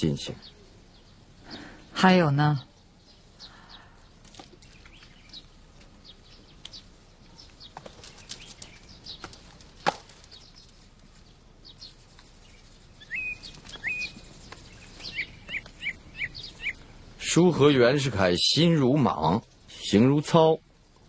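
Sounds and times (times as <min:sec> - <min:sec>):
small birds chirping: 0:00.0 - 0:21.0
faint clicks: 0:06.6 - 0:06.8.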